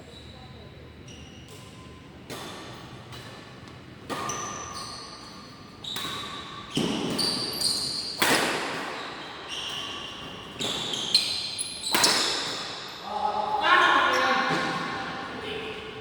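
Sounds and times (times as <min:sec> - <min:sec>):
shoes squeaking on court: 0:04.1 - 0:13.0
rackets hitting shuttlecock: 0:08.1 - 0:09.1.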